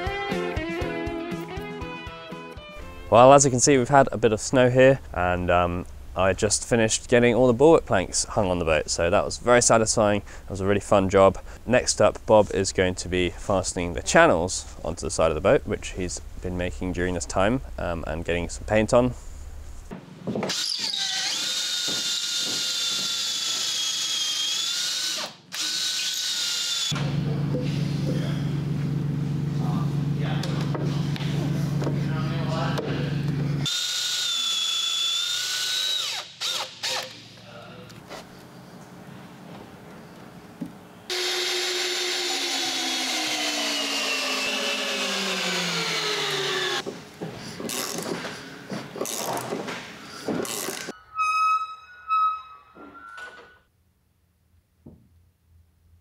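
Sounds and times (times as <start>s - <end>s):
steady low hum: 2.8s - 20.0s, 27.0s - 33.7s
cordless drill boring through wood: 20.5s - 27.0s, 33.6s - 37.2s, 41.1s - 46.8s.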